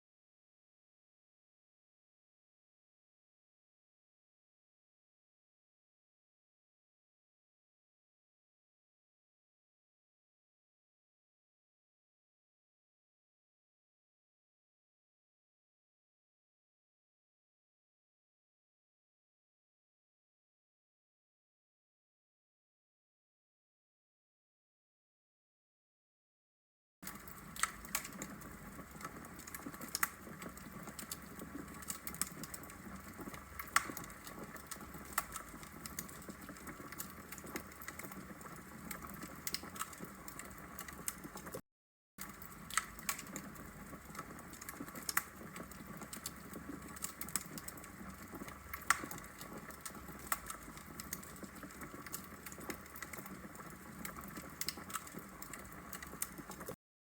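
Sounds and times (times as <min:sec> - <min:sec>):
fire crackling and popping: 0:27.0 - 0:41.6, 0:42.2 - 0:56.8.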